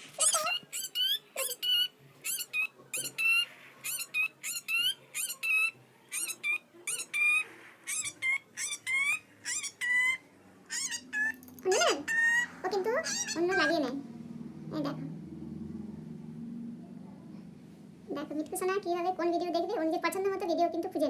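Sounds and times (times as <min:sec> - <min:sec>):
parrot squawking: 0:00.0 - 0:14.1.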